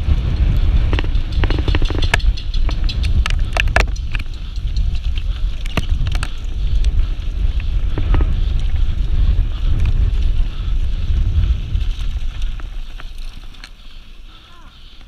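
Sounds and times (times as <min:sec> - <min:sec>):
bike rattling over rough ground: 0:00.0 - 0:15.0
wind buffeting microphone: 0:00.0 - 0:15.0.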